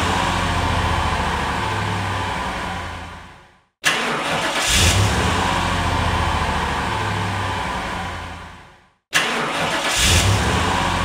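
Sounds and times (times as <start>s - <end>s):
car engine idling: 0.0s - 3.6s, 4.6s - 8.8s.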